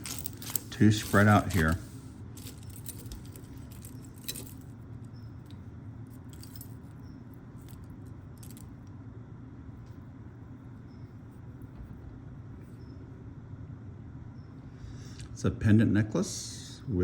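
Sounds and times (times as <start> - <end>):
metal jewelry clinking: 0.0 - 8.9.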